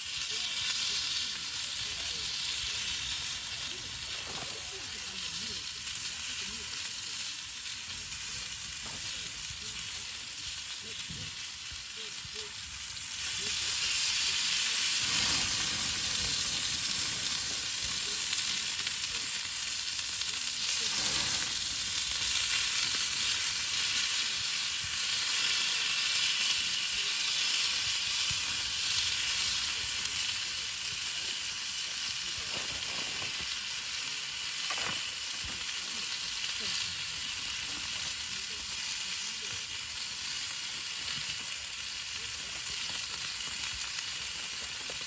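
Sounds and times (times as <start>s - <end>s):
food sizzling in a hot pan: 0.0s - 45.0s.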